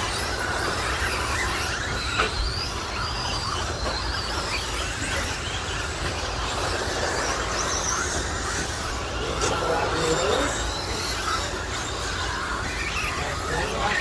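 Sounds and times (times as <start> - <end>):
electric motors whining: 0.0 - 14.0.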